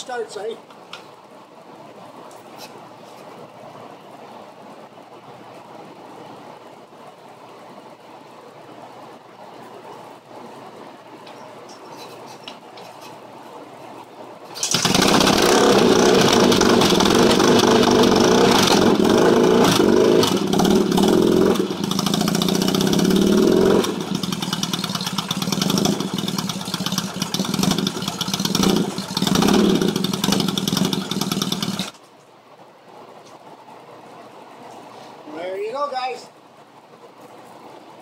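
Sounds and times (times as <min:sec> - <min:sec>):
motorcycle engine idling and revving: 0:14.6 - 0:32.0.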